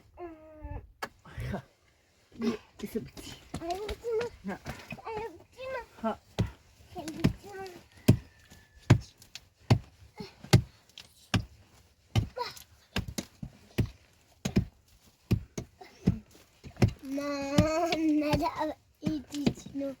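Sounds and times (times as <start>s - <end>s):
person speaking: 2.4s - 7.8s, 17.0s - 20.0s.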